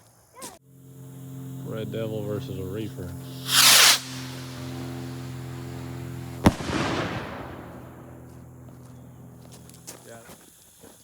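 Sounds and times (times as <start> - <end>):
firework rocket launching whoosh: 3.2 - 8.3
firework bang overhead: 3.4 - 8.7.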